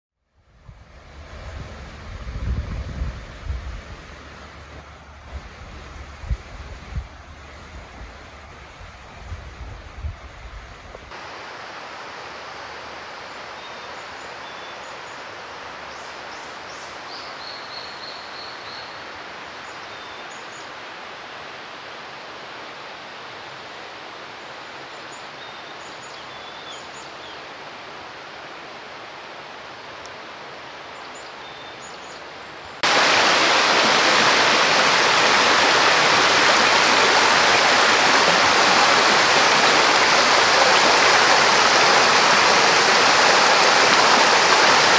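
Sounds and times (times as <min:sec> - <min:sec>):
running water: 0:32.8 - 0:44.9.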